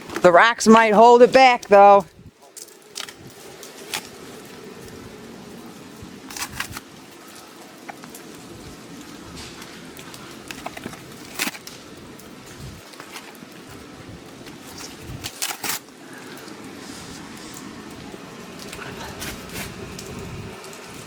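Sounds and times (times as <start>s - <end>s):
fire crackling and popping: 0.0s - 21.0s
fire low rush: 15.9s - 21.0s.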